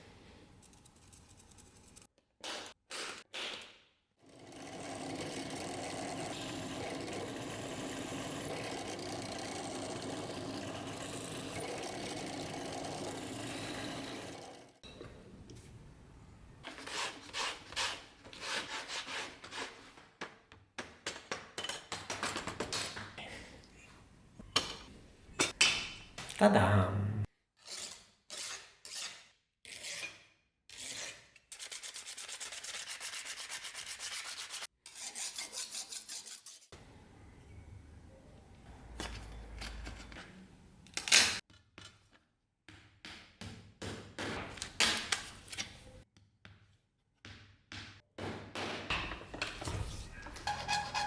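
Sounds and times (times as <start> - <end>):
small motor-driven tool running: 4.4 - 14.8.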